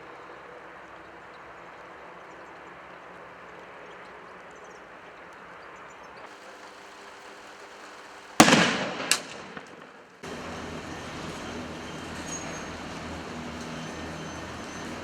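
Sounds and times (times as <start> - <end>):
steady background noise: 0.0 - 15.0
loud bang: 8.4 - 10.0
sharp crack: 8.4 - 10.3.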